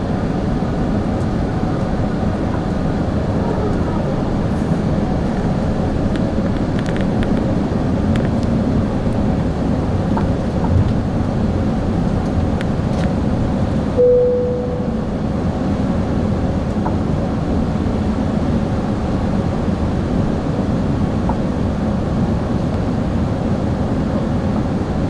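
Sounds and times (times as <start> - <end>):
aircraft cabin rumble and hiss: 0.0 - 25.0
cabin chime: 14.0 - 15.2.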